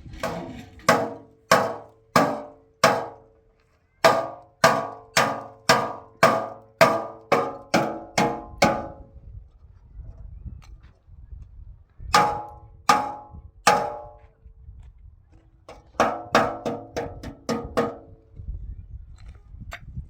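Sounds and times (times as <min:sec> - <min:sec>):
hammer blows on metal: 0:04.0 - 0:09.1, 0:12.1 - 0:14.2.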